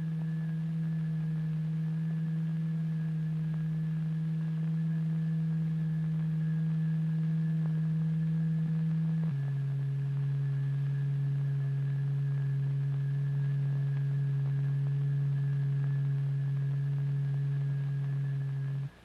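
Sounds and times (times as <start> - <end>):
low electronic test tone: 0.0 - 19.0.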